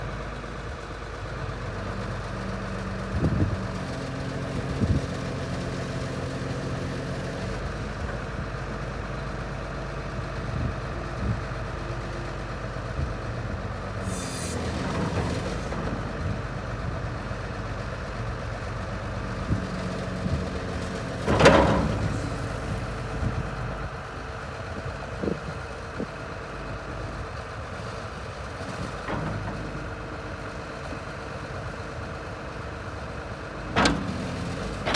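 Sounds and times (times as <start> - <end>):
excavator diesel engine running: 0.0 - 34.9
metal knocks and clanks: 20.8 - 23.9, 33.8 - 34.9.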